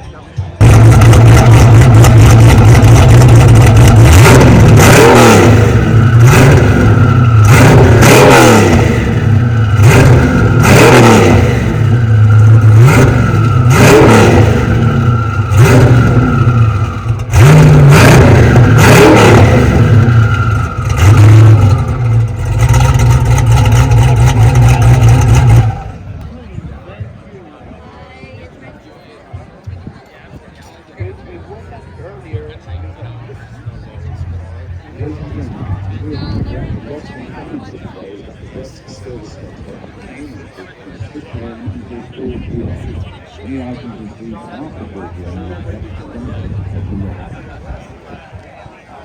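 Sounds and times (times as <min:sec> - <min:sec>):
car engine revving: 0:00.6 - 0:26.2, 0:32.9 - 0:37.4, 0:41.6 - 0:47.9.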